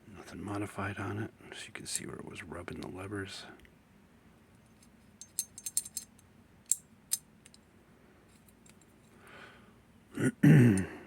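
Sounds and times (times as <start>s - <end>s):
metal lock parts clinking: 4.6s - 7.7s, 8.4s - 9.0s.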